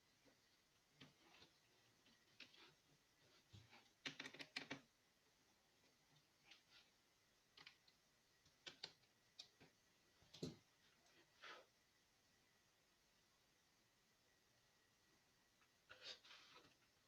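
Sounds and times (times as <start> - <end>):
faint light clicks and taps: 7.5 - 11.2.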